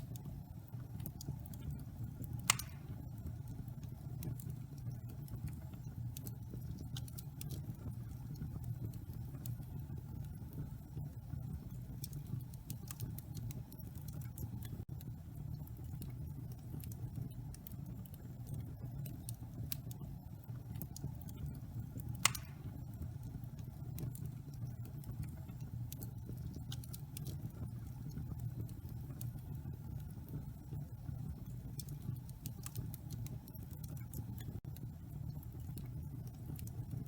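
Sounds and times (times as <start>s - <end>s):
wood fire rumbling and crackling: 0.0s - 37.0s
fire pop: 1.0s - 3.3s, 22.0s - 23.0s.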